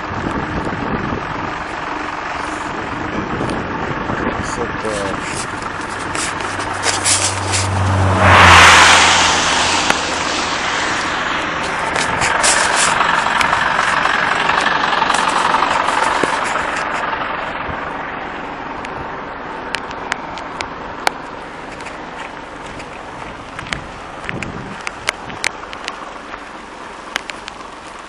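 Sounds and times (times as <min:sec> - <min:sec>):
motor vehicle noise: 0:00.0 - 0:28.0.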